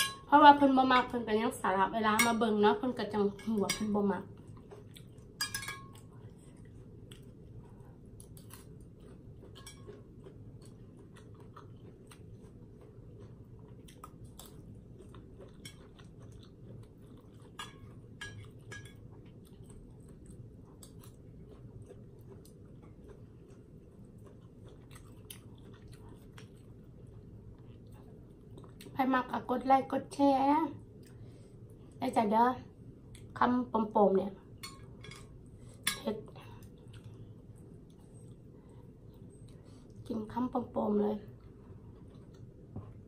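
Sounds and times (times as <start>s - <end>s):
low steady room hum: 0.0s - 43.0s
person chewing: 4.3s - 29.0s, 36.6s - 40.0s, 41.3s - 43.0s.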